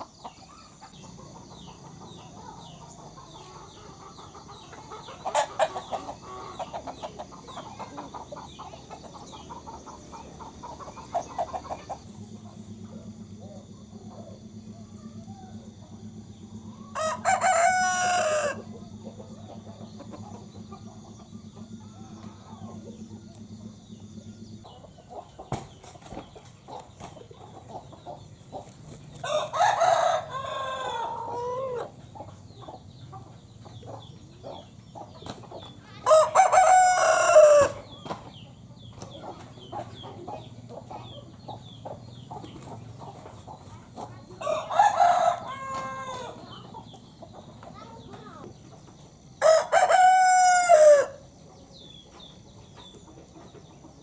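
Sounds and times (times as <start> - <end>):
rooster crowing: 16.8 - 18.7, 29.2 - 32.0, 36.0 - 38.0, 44.4 - 46.6, 49.4 - 51.3.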